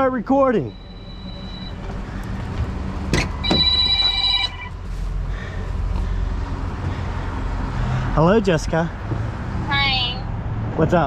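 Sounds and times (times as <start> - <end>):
steady low hum: 0.1 - 7.8
phone ringtone: 0.7 - 1.8, 3.4 - 4.8.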